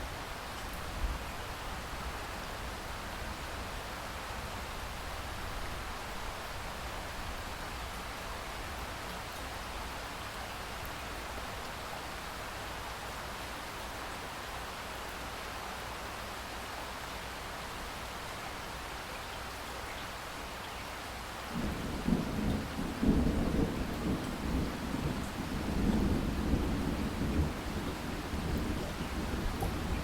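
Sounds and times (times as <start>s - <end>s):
steady rain: 0.0s - 30.0s
rolling thunder: 21.6s - 30.0s.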